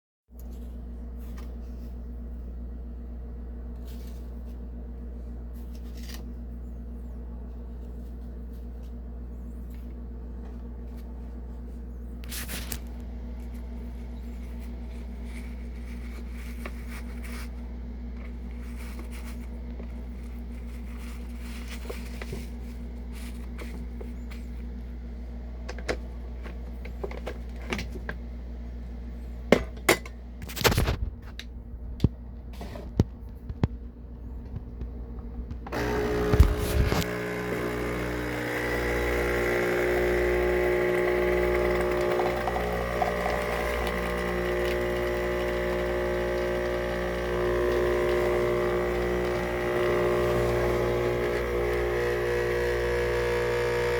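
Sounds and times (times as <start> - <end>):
coffee maker buzzing: 35.6 - 53.9.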